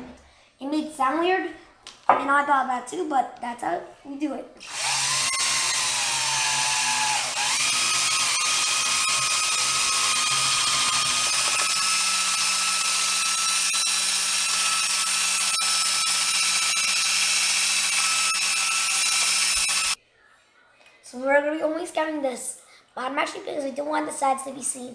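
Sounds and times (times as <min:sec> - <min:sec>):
power drill whining on glass: 0:04.6 - 0:20.0.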